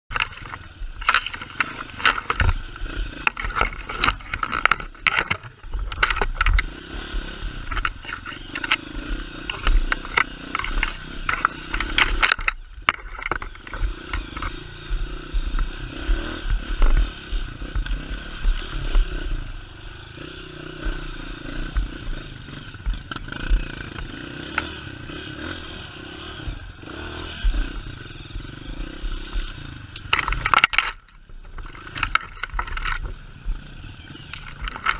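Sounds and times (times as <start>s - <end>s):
knocks and clattering: 0.1s - 14.7s, 28.4s - 33.2s
vehicle engine under load: 0.1s - 34.9s.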